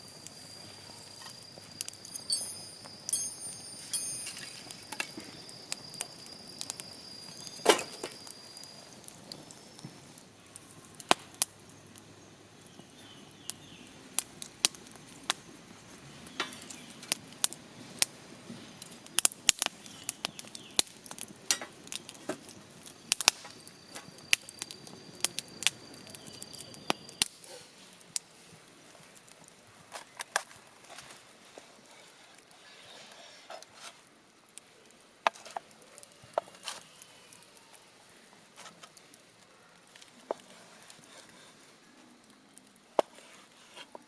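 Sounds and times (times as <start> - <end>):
thin high tone: 0.0 - 9.0.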